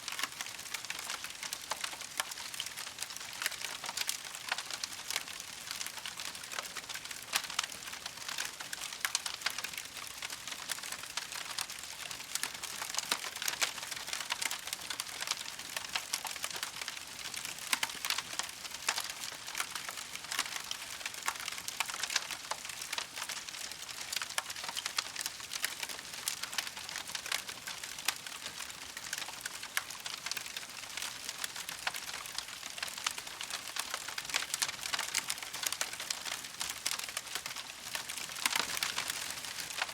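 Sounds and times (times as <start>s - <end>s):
campfire crackling and popping: 0.1s - 39.9s.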